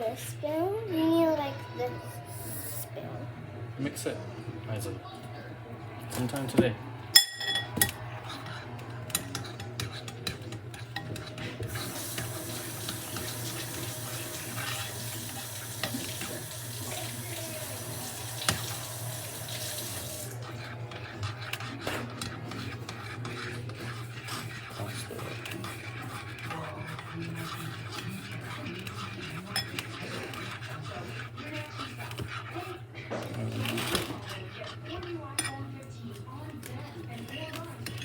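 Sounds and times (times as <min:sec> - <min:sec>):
spoon clinking and scraping in bowl: 0:07.1 - 0:17.3, 0:18.4 - 0:35.8
water running: 0:11.7 - 0:20.5.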